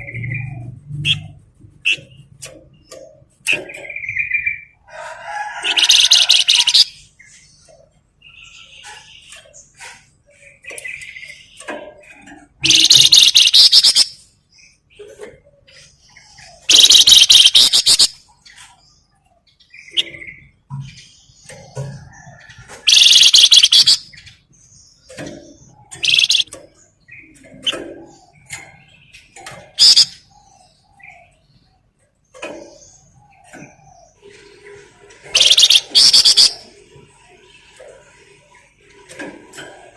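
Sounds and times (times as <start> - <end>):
songbird rattling chatter: 5.2 - 7.0, 10.7 - 14.3, 16.6 - 18.2, 22.6 - 24.2, 25.1 - 30.3, 35.2 - 36.7
soft bird chirps: 5.7 - 38.2.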